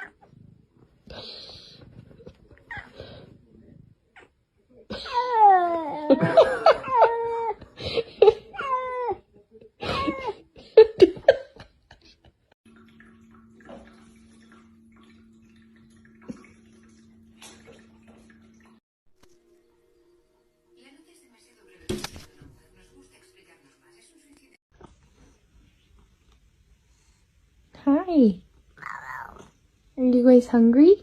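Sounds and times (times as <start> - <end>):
cat meowing: 28.8 - 29.5.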